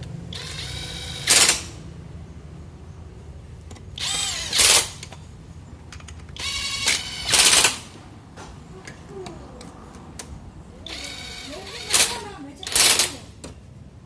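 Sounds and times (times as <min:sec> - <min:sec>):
power tool rising whine: 0:00.3 - 0:01.8, 0:04.0 - 0:05.0, 0:06.4 - 0:08.0
impact wrench rattling bursts: 0:00.3 - 0:01.9, 0:03.9 - 0:05.2, 0:06.0 - 0:08.0, 0:10.9 - 0:13.4.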